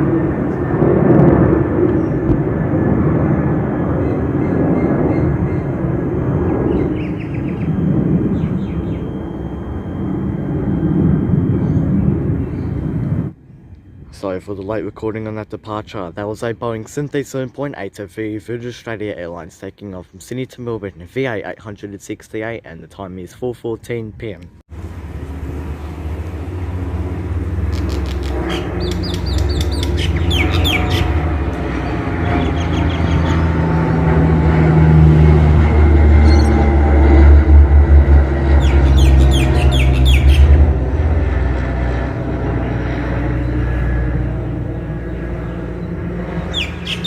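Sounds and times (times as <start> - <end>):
jet airliner engine roar: 0.0 - 14.6, 24.7 - 47.0
small birds chirping: 6.7 - 9.2, 27.6 - 33.5, 38.6 - 40.5, 45.4 - 47.0.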